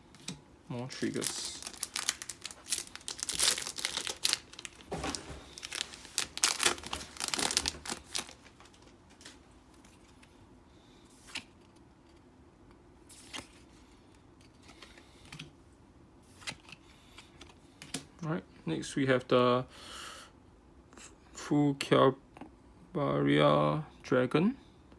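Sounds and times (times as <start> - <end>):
cards and foil wrapper crinkling: 0.7 - 9.4.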